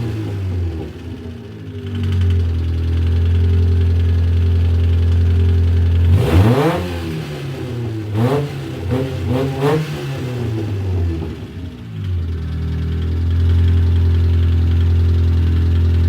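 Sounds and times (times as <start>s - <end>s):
car engine idling and revving: 0.0s - 16.0s
engine knocking: 1.6s - 6.1s, 11.9s - 16.0s.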